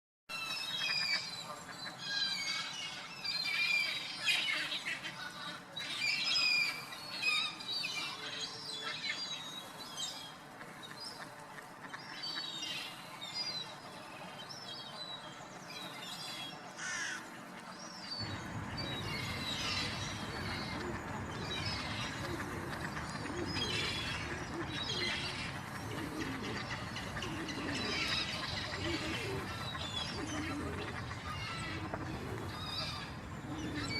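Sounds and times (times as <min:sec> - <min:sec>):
pond birds squawking and chirping: 0:00.3 - 0:33.9
steady background noise: 0:00.3 - 0:33.9
wavering cooing notes: 0:18.2 - 0:33.9.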